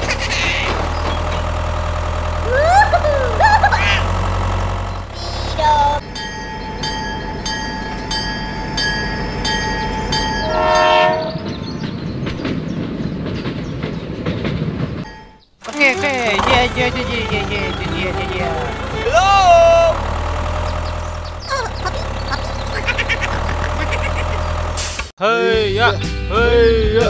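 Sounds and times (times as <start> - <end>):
low engine hum: 0.0 - 8.2, 15.6 - 25.1
train rattling on track: 0.0 - 25.1
railroad crossing signal ringing: 5.2 - 11.7
train horn: 10.4 - 11.6
squeaky gliding chirps: 20.0 - 24.8.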